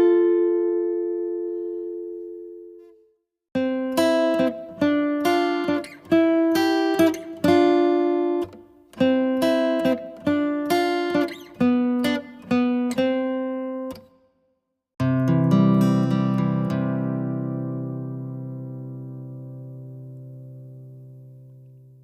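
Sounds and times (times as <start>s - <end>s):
acoustic guitar plucked notes: 0.0s - 3.0s, 3.6s - 14.2s, 15.0s - 22.0s.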